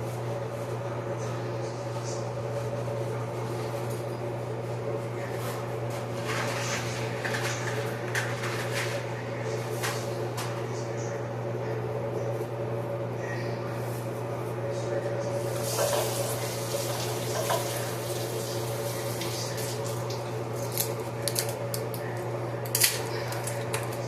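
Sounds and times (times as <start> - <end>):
appliance hum: 0.0 - 24.0
dry spaghetti breaking: 20.6 - 24.0.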